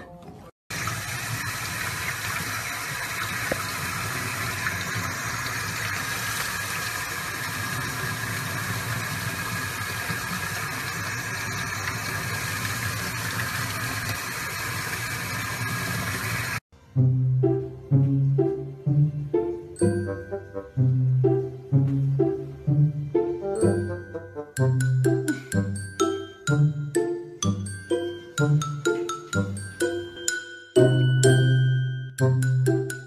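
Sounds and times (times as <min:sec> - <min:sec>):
tap water running into sink: 0:00.7 - 0:16.6.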